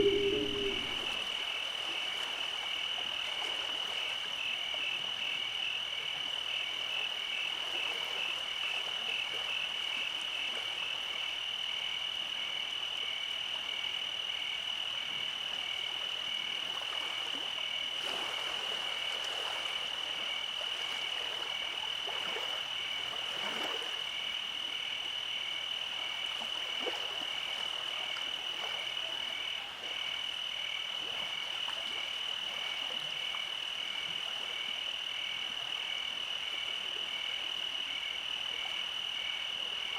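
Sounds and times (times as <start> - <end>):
high-pitched frog trill: 0.0 - 1.2
pulsing frog call: 0.0 - 1.3.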